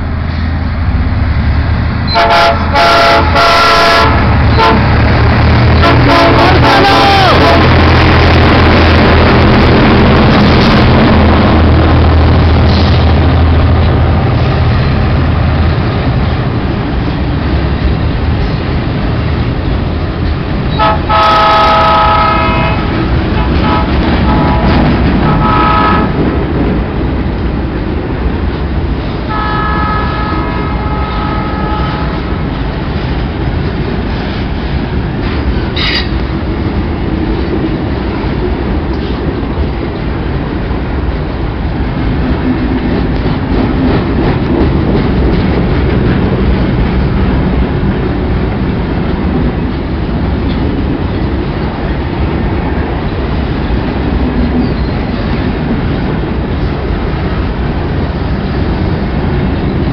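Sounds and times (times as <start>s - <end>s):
locomotive engines throbbing: 0.0s - 59.9s
multi-note locomotive horn: 2.1s - 4.9s, 5.8s - 7.8s, 20.7s - 26.2s, 29.3s - 32.5s
wheels clattering on rails: 22.3s - 30.0s, 30.8s - 59.9s.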